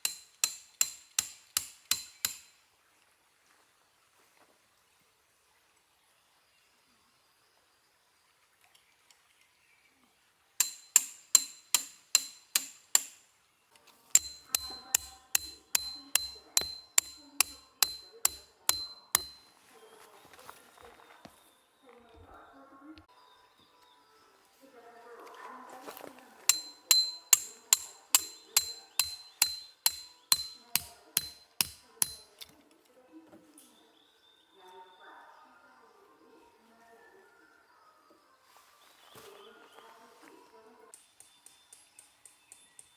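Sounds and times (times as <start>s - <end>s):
hammer striking metal pegs: 0.0s - 2.5s, 10.6s - 13.2s, 14.2s - 19.5s, 26.5s - 32.3s.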